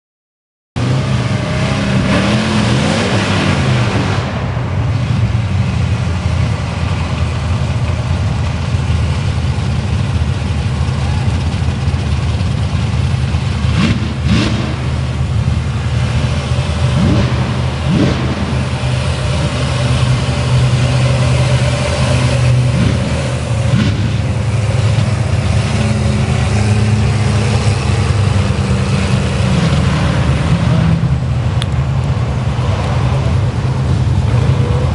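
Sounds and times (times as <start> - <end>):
truck engine revving: 0.8 - 34.9.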